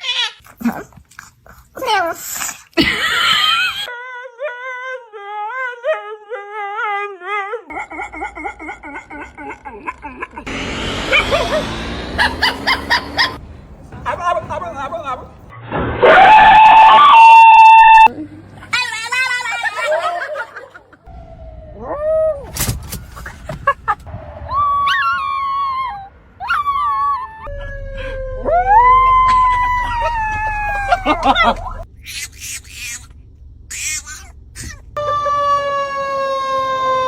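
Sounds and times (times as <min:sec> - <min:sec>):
dogs howling and whining: 0:03.6 - 0:13.4, 0:16.0 - 0:18.1, 0:24.5 - 0:31.9, 0:34.3 - 0:37.0
siren-like falling tone: 0:10.3 - 0:18.1, 0:21.1 - 0:22.6, 0:24.1 - 0:32.0.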